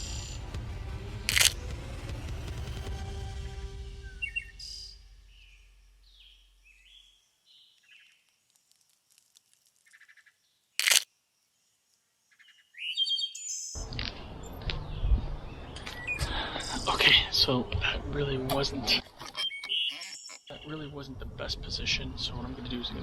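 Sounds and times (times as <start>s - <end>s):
sharp click: 1.3s - 1.6s, 10.8s - 11.1s
songbirds chirping: 4.0s - 23.0s.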